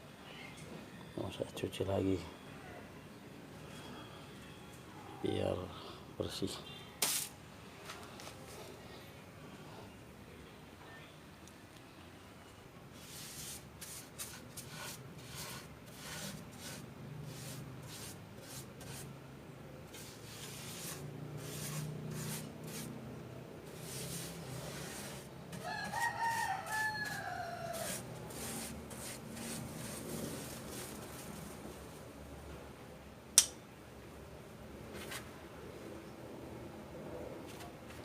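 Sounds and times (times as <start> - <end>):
scraping and splashing while washing: 23.7 - 31.4
rooster crowing: 25.6 - 28.6.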